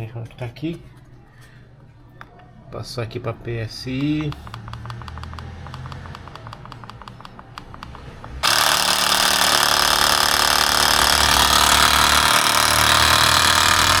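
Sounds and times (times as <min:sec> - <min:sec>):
air compressor running: 0:04.4 - 0:14.0.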